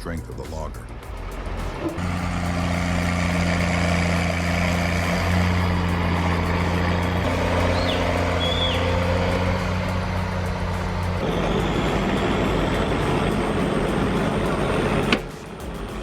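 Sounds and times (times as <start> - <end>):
tractor engine running: 0.0 - 16.0
sharp click: 15.0 - 16.0.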